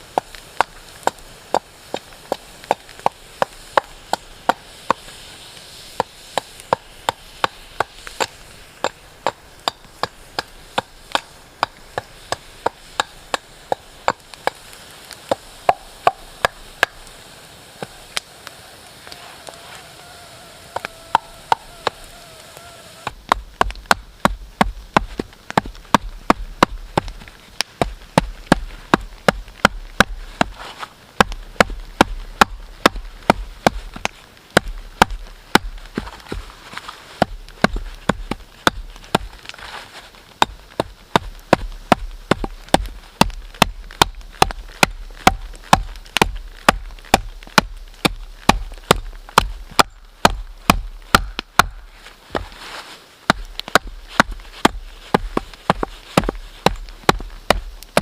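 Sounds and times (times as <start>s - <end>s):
tool chopping into wood: 6.0s - 14.6s, 23.1s - 27.2s, 41.2s - 52.5s, 53.3s - 58.0s.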